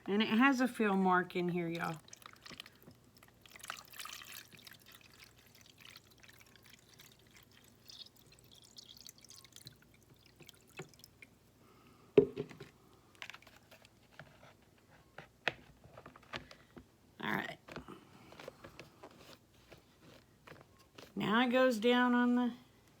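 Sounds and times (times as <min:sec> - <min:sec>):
water dripping: 0:01.7 - 0:11.4
water pouring into reservoir: 0:01.8 - 0:11.4.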